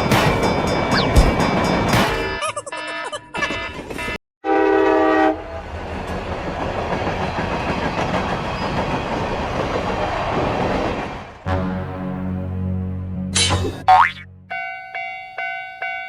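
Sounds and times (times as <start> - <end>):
passing train running noise: 0.0 - 2.4, 3.8 - 12.5
train horn: 4.4 - 5.6, 11.5 - 12.4.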